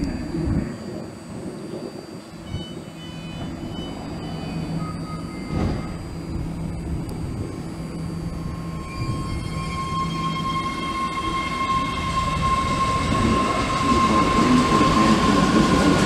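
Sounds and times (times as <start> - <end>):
electric train motors humming: 0.0 - 16.0
high whining tones: 0.0 - 16.0.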